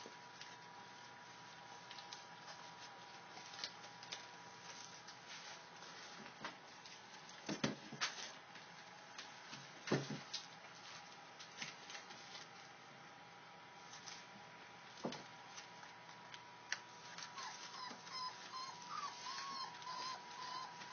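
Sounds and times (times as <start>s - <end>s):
puppies suckling: 17.1s - 20.9s.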